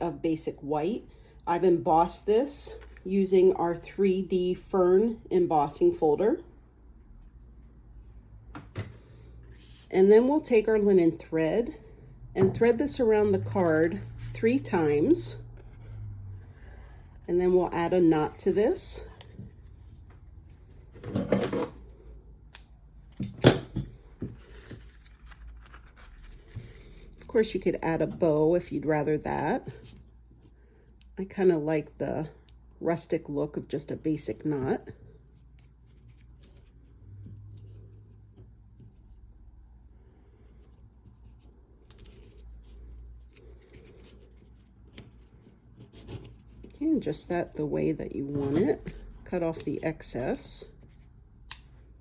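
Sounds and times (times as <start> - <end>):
rustling of card and thread: 6.9 - 10.8, 11.4 - 21.2, 21.8 - 28.4, 34.4 - 52.0
paper rustle: 24.2 - 27.3.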